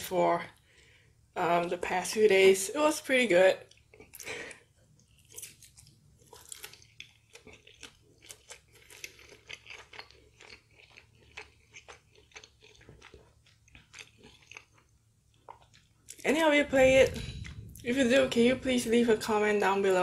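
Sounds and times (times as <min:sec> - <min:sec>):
chewing with crisp crunches: 0:03.6 - 0:16.3
biting crispy fried chicken: 0:05.2 - 0:14.9.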